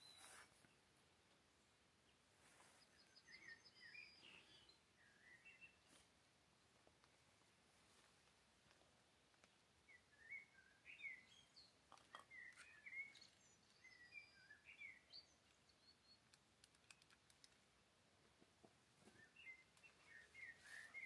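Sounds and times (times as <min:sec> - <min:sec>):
bird chirping: 0:00.0 - 0:06.1, 0:08.7 - 0:17.7, 0:19.0 - 0:21.0
faint clicks: 0:08.2 - 0:09.6, 0:15.4 - 0:18.5.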